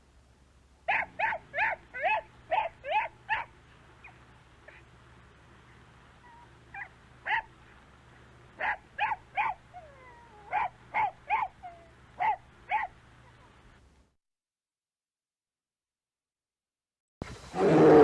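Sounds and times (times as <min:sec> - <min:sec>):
dog yipping: 0:00.9 - 0:04.8, 0:06.2 - 0:07.5, 0:08.6 - 0:13.5
dog whining: 0:06.2 - 0:07.4, 0:09.4 - 0:13.6.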